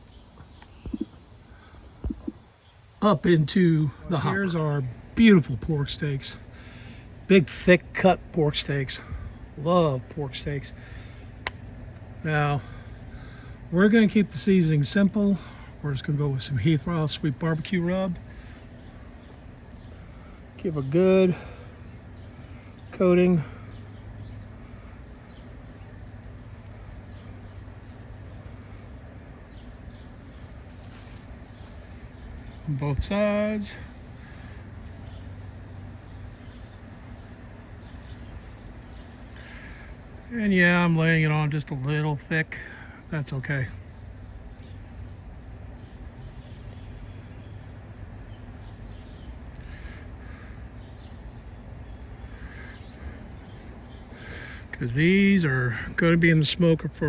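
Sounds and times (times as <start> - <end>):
faint bird calls: 18.2 - 40.4, 43.8 - 56.0.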